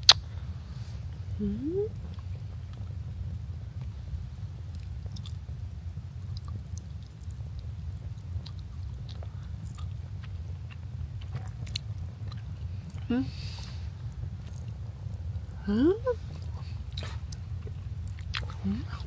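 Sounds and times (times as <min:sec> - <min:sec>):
low hum: 0:00.0 - 0:19.0
person chewing food: 0:05.1 - 0:05.4, 0:08.4 - 0:14.9, 0:16.2 - 0:19.0.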